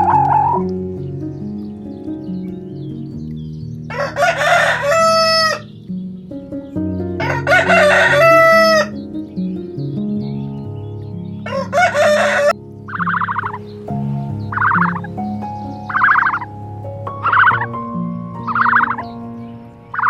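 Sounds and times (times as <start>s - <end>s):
background music: 0.0s - 20.0s
rooster crowing: 3.9s - 5.7s, 7.2s - 8.9s, 11.5s - 12.6s.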